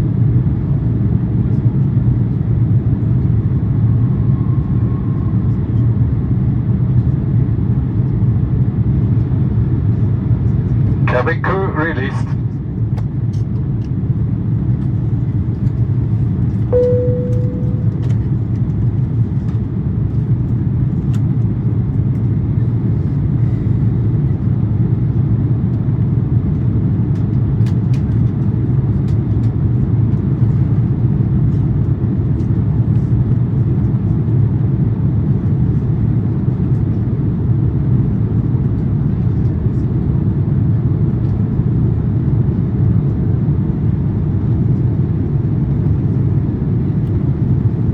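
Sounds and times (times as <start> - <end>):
aircraft cabin engine rumble: 0.0 - 47.9
cabin chime: 16.8 - 18.0.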